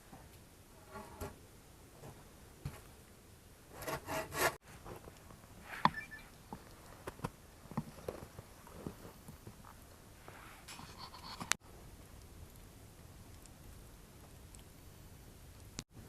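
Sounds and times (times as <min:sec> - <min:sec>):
rasping scraping on wood: 0:03.8 - 0:04.6.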